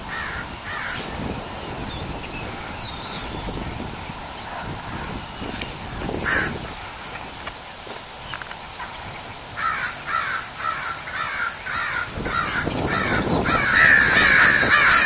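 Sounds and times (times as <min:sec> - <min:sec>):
crows cawing: 0:00.0 - 0:01.2, 0:06.2 - 0:06.7, 0:09.5 - 0:15.0
birds alarm chorus: 0:00.0 - 0:15.0.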